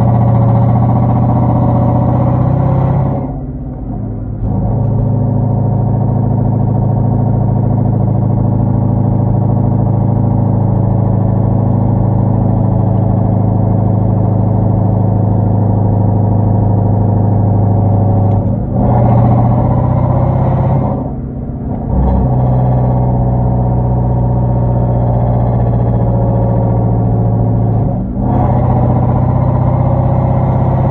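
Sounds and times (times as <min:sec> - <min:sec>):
car engine cruising: 0:00.0 - 0:30.9.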